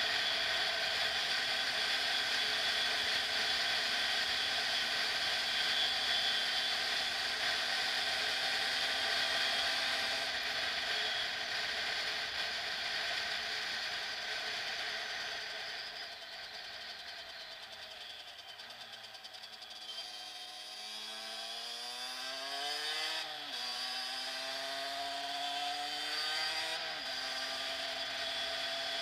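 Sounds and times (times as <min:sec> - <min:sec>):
high-pitched motorcycle engine: 0:00.0 - 0:29.0.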